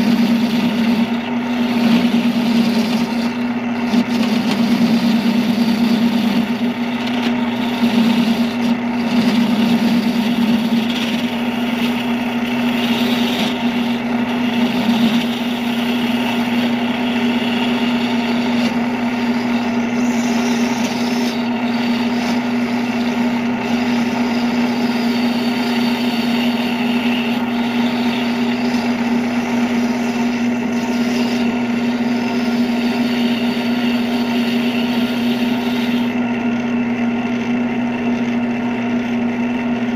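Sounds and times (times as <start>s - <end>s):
wood being worked: 0.0s - 36.8s
power tool motor humming: 0.0s - 39.6s.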